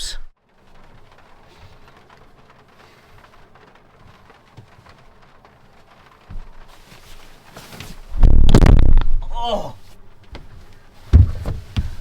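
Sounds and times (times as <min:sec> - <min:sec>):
rain pattering on camper roof: 0:00.0 - 0:12.0
low thump: 0:11.1 - 0:12.0.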